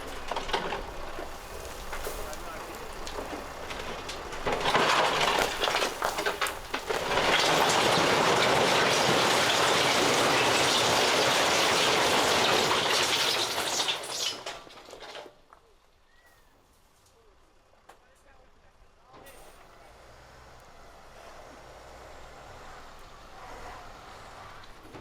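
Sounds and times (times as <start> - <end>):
rocks being dumped: 0.0 - 15.6.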